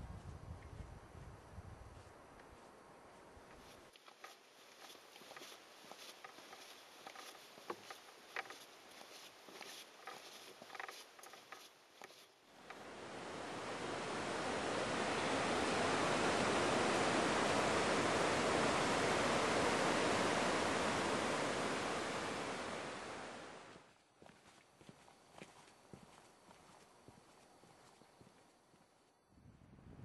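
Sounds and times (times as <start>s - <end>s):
fast-flowing water rushing: 12.7s - 23.8s.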